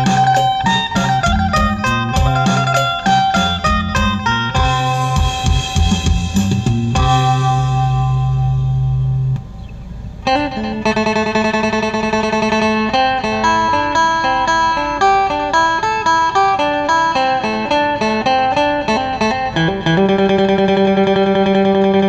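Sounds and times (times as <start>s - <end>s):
plucked lute melody: 0.0s - 9.4s, 10.2s - 22.0s
lute drone: 7.0s - 9.4s.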